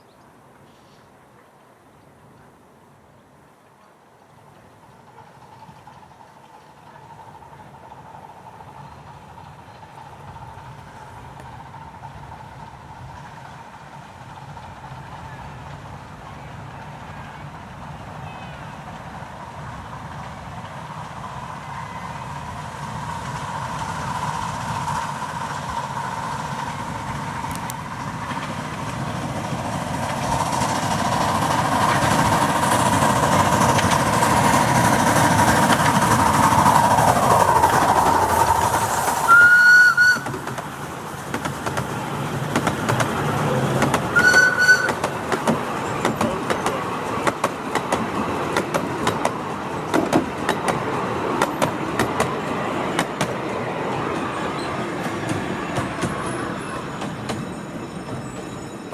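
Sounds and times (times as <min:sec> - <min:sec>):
miniature steam train running: 0:03.5 - 0:58.9
wheels clicking over rail joints: 0:03.6 - 0:58.9
steam locomotive whistle blasts: 0:39.2 - 0:40.4, 0:44.1 - 0:45.2
rails ringing: 0:42.6 - 0:58.9.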